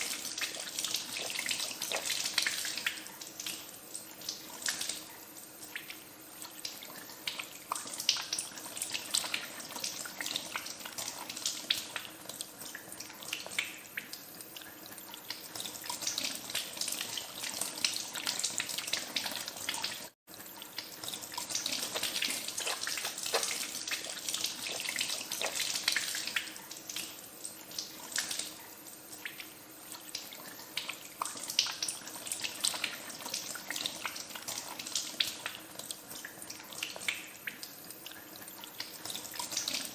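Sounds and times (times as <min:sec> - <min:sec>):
hands being washed: 0:20.8 - 0:39.9.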